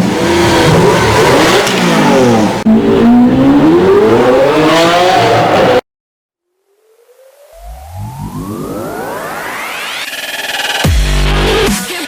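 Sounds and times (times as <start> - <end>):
vehicle engine revving: 0.0 - 5.8.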